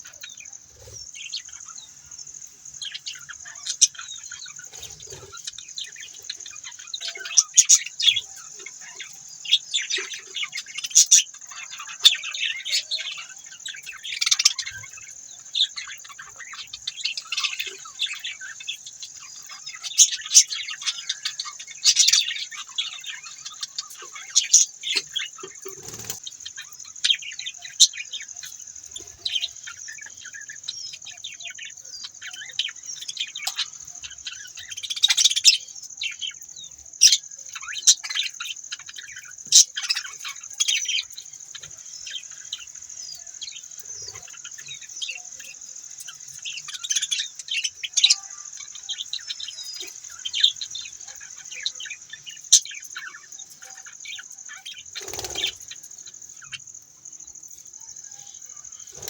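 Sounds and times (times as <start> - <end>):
budgerigars chirping: 2.8 - 36.4, 53.8 - 56.7.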